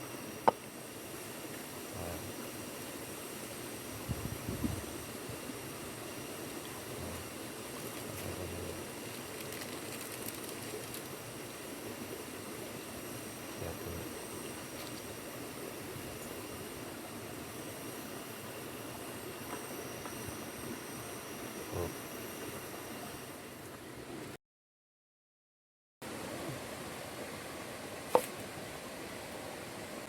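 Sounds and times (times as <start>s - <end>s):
pot boiling: 0.0s - 23.5s.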